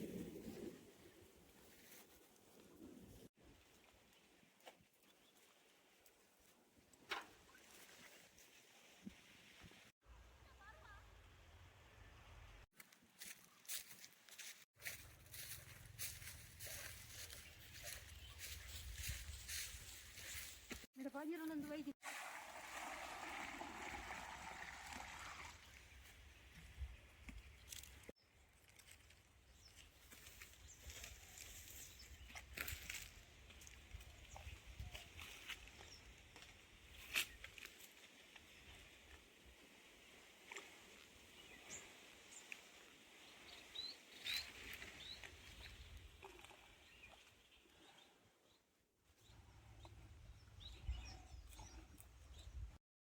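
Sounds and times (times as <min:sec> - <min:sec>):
small birds chirping: 0:15.0 - 0:20.8, 0:41.2 - 0:52.8
water trickling and sloshing: 0:22.0 - 0:29.0, 0:38.2 - 0:47.9.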